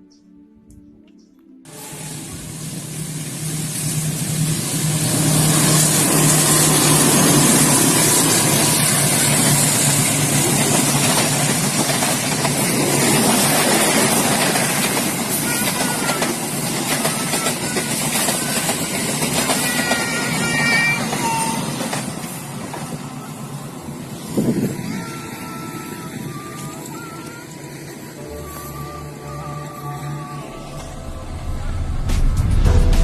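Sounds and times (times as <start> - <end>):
diesel engine drone: 1.7 - 12.8, 23.1 - 33.0
train wheels rushing on rails: 1.7 - 33.0.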